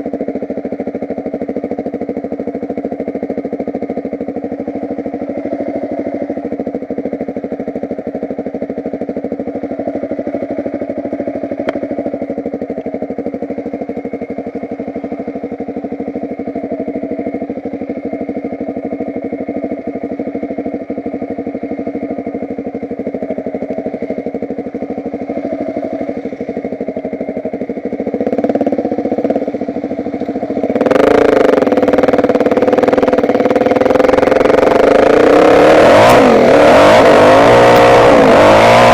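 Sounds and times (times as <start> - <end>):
motocross bike engine revving: 28.1 - 38.9.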